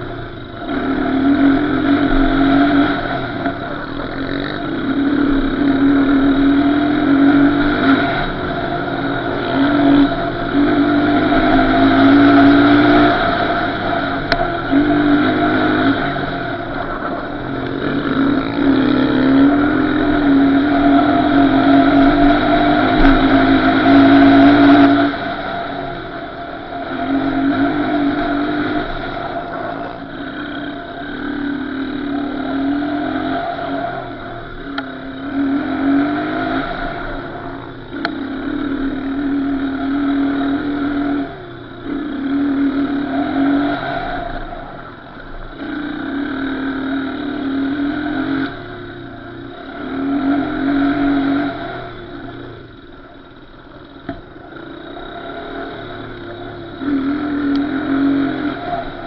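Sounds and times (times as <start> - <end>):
off-road engine revving: 0.0 - 59.0.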